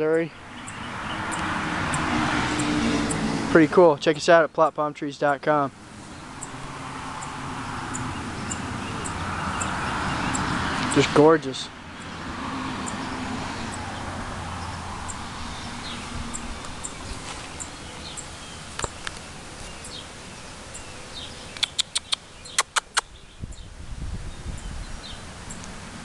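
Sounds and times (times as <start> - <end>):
small bird chirping: 14.6 - 23.7.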